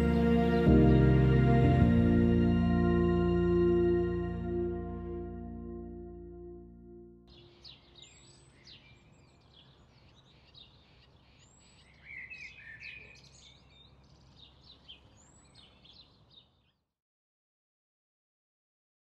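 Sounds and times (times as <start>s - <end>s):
birds chirping and calling: 7.3s - 16.6s.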